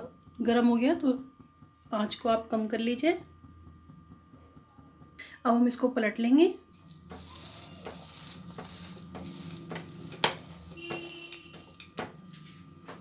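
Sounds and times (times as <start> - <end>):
sandwich sizzling in pan: 6.8 - 12.6
wooden spatula tapping and scraping pan: 6.8 - 13.0.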